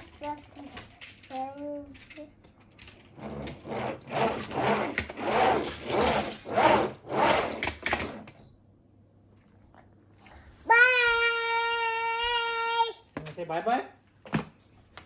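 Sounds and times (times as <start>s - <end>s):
toy wheels rolling on hard surface: 0.0s - 8.4s.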